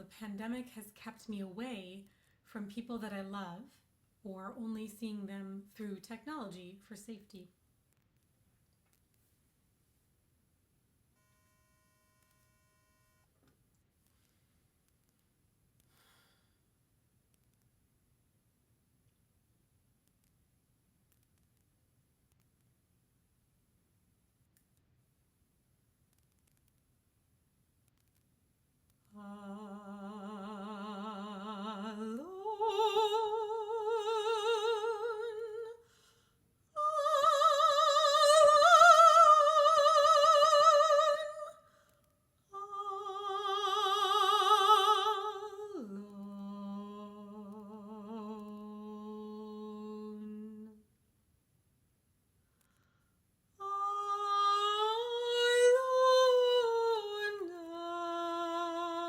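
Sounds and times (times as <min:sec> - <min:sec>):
person singing classical solo: 0:29.1 - 0:35.8, 0:36.8 - 0:41.6, 0:42.5 - 0:50.8, 0:53.6 - 0:59.0.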